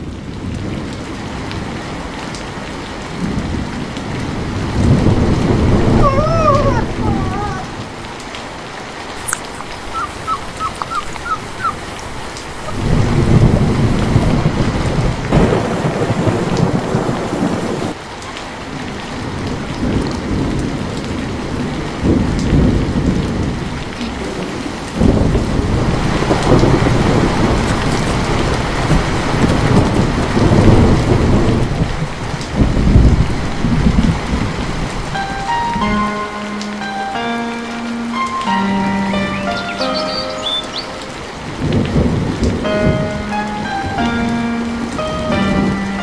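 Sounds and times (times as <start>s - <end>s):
steady rain: 0.0s - 46.0s
thunder rumbling: 3.1s - 8.2s, 9.4s - 18.0s, 19.2s - 36.1s, 40.4s - 46.0s.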